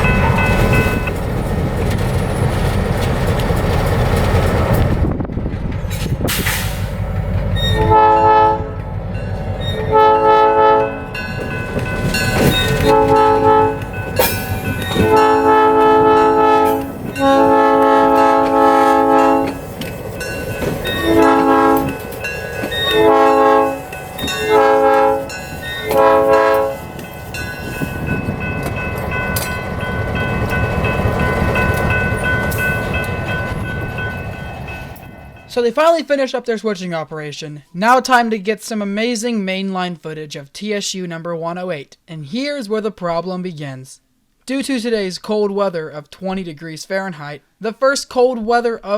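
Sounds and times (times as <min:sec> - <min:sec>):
locomotive diesel engine rumble: 0:00.0 - 0:35.6
rolling rail cars: 0:00.0 - 0:36.0
locomotive air horn blasts: 0:07.8 - 0:08.8, 0:09.7 - 0:11.2, 0:12.7 - 0:14.0, 0:14.9 - 0:19.6, 0:21.0 - 0:22.1, 0:22.8 - 0:27.0.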